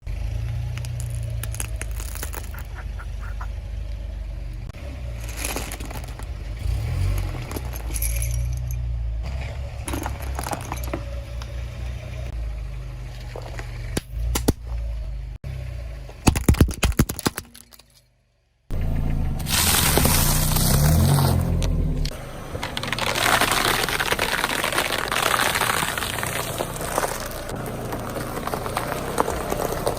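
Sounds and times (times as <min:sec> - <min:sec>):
plastic toys knocking and clicking: 0:16.1 - 0:17.9
loud plastic clatters: 0:16.2 - 0:17.9, 0:22.6 - 0:27.3.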